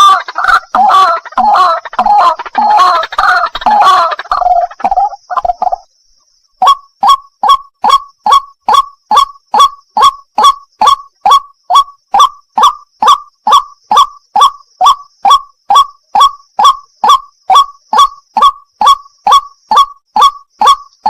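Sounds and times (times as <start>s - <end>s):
bird calling harsh notes: 0.0s - 5.9s, 6.5s - 21.0s.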